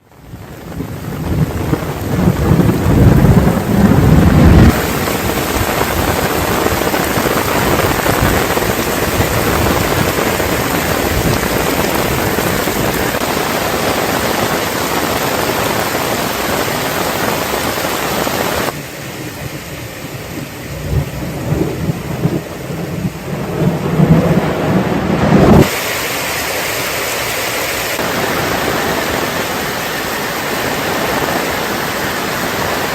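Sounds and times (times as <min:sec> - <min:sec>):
heavy rain falling: 0:00.0 - 0:32.9
low rumbling: 0:00.4 - 0:14.2, 0:19.2 - 0:25.7.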